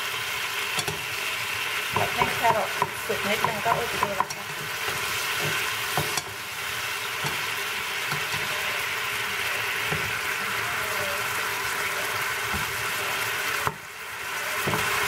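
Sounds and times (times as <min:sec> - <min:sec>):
food sizzling in frying pan: 0:00.0 - 0:15.0
spatula knocking and scraping: 0:01.9 - 0:06.4.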